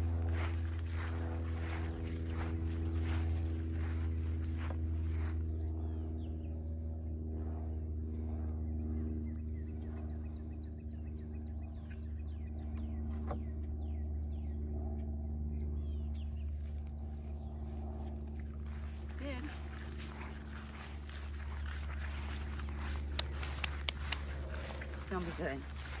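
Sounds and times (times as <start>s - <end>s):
steady low hum: 0.0s - 26.0s
bird chirps: 9.2s - 14.8s.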